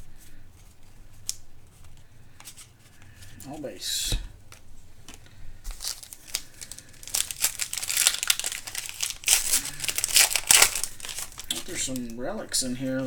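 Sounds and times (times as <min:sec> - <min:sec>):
wrapper crinkling and tearing: 0:05.6 - 0:12.2.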